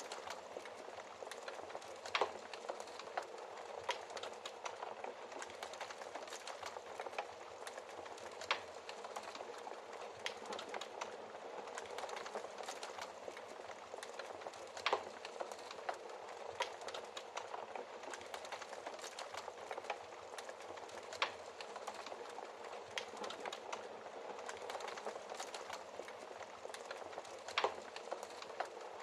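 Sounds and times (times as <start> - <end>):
wood fire crackling: 0.0 - 29.0
fire pops: 24.4 - 28.9.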